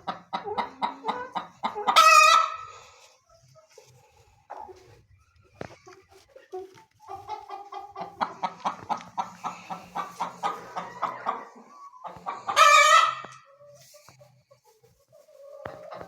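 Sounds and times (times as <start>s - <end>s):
chickens clucking: 0.0s - 16.0s
chicken harsh squawk: 1.8s - 2.8s, 12.2s - 13.4s.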